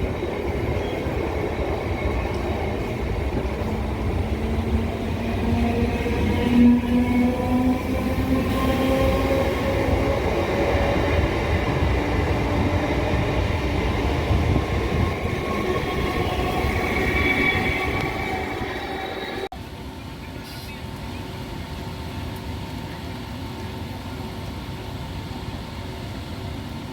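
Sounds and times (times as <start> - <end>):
train wheel rumble: 0.0 - 19.5.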